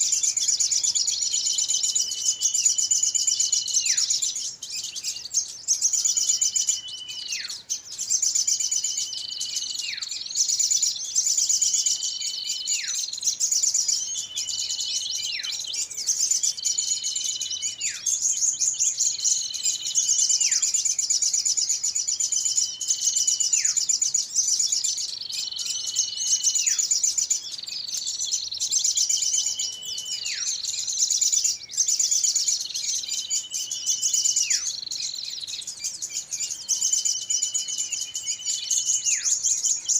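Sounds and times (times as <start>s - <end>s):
songbirds twittering: 0.0s - 39.9s.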